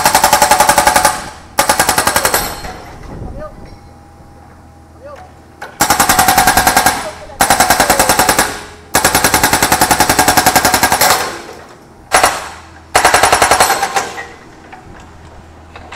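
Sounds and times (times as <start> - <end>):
hydraulic breaker hammering metal: 11.0 - 14.4.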